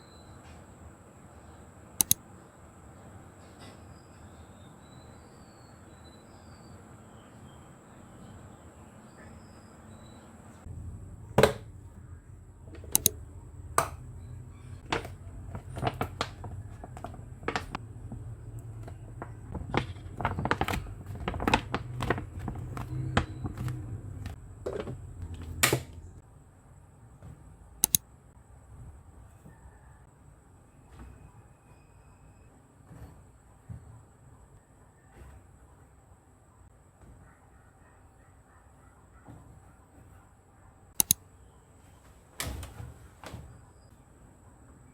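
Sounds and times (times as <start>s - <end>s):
steady low hum: 10.2s - 28.0s
sharp knocks and clicks: 12.7s - 13.2s, 41.0s - 41.2s.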